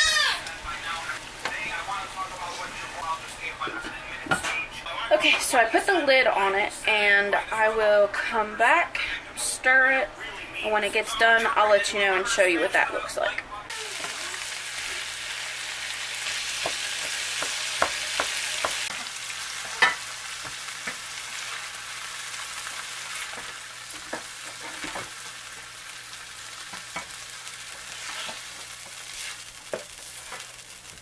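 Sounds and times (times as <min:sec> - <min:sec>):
vegetables sizzling in oil: 0:00.0 - 0:03.5, 0:13.7 - 0:31.0
spatula scraping a pan: 0:26.6 - 0:31.0.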